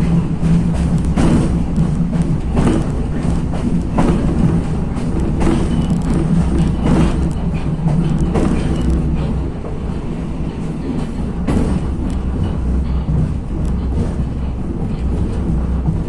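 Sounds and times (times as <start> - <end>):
railcar engine and wheels rumbling: 0.0 - 16.0
wheels knocking on rail joints: 0.0 - 16.0.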